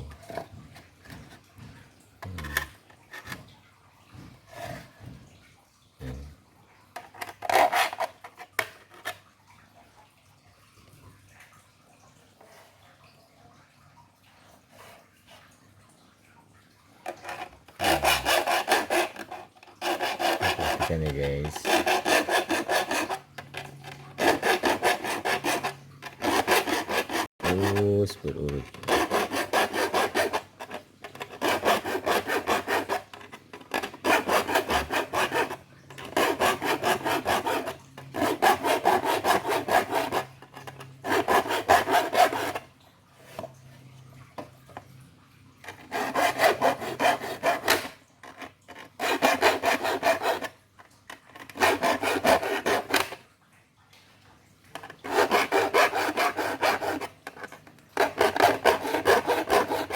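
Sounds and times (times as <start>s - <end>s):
metal file rasping on saw teeth: 7.2s - 8.2s, 17.1s - 42.7s, 45.7s - 50.6s, 51.4s - 53.2s, 54.8s - 59.9s.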